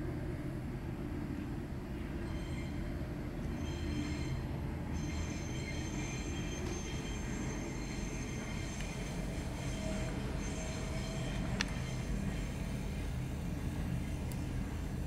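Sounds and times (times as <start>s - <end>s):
train rumbling on track: 0.0s - 15.0s
high wheel squeal: 2.2s - 12.9s.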